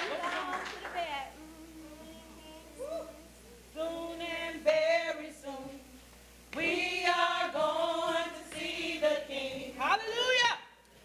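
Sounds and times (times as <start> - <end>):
group of voices singing: 3.8 - 9.8.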